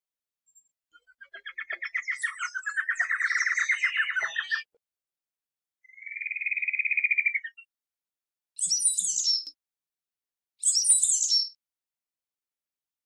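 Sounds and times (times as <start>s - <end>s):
songbird singing: 0.5s - 4.8s, 5.8s - 7.7s, 8.6s - 9.6s, 10.6s - 11.6s.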